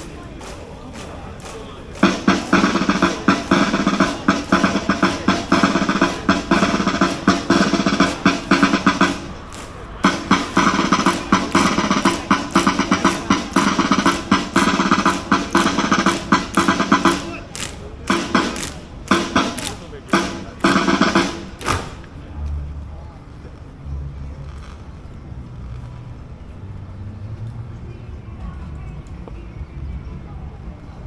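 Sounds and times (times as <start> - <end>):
rapid drumming: 0.0 - 22.3
parade band music: 1.9 - 22.1.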